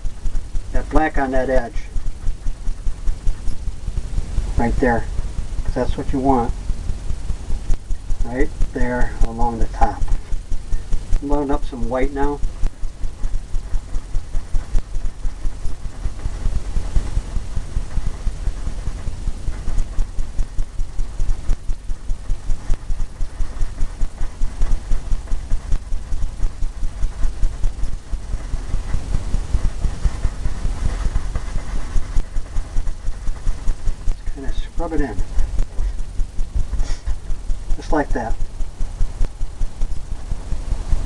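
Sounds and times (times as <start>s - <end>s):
brush scrubbing canvas: 23.5s - 37.2s.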